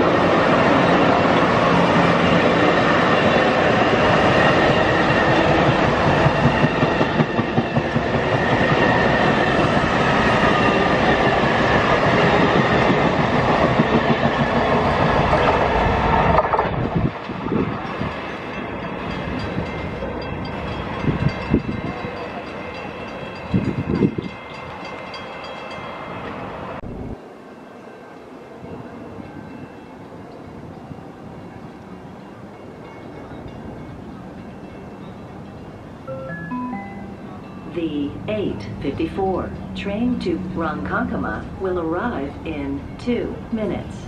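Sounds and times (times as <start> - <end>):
train rumbling on rails: 0.0 - 36.1, 37.2 - 44.0.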